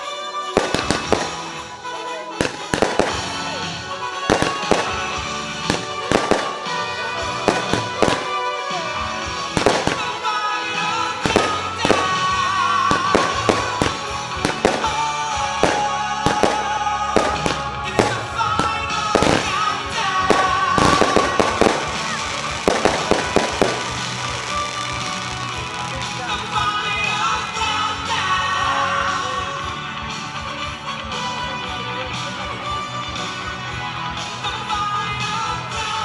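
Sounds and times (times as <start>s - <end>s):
music playing: 0.0s - 36.0s
firework bangs: 0.6s - 26.6s.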